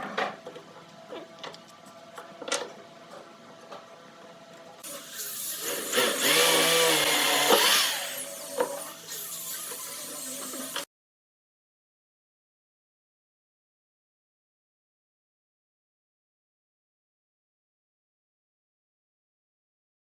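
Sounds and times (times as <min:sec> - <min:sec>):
power tool running: 0:04.8 - 0:10.9.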